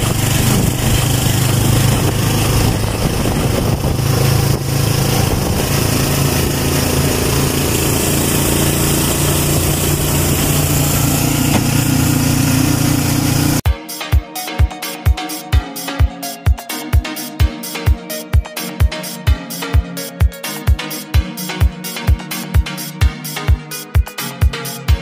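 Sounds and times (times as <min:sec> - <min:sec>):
road and wind noise: 0:00.0 - 0:13.6
small motorcycle engine running: 0:00.0 - 0:13.6.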